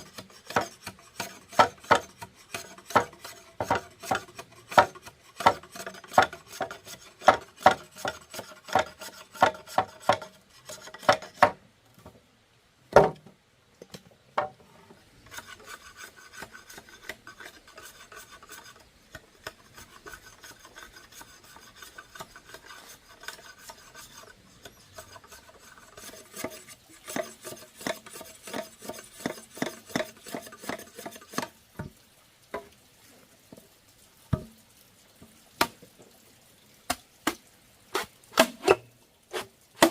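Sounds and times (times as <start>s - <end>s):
hand tool rasping: 0.0s - 11.1s, 15.3s - 31.4s
soft continuous rubbing: 14.6s - 36.6s.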